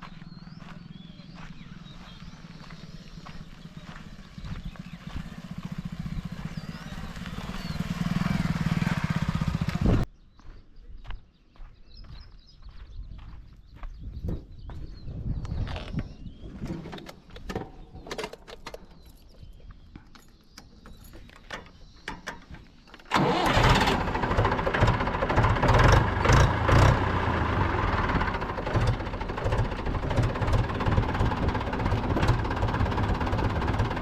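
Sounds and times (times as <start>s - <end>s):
diesel tractor engine running: 0.0s - 10.1s, 20.6s - 34.0s.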